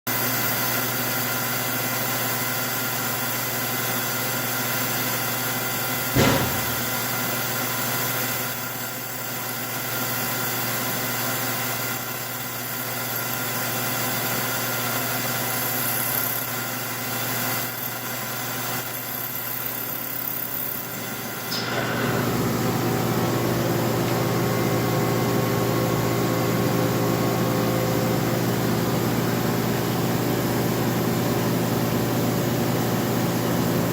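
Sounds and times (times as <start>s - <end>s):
sharp knock: 6.2s - 7.2s
milling machine humming: 6.2s - 8.0s, 11.0s - 33.5s.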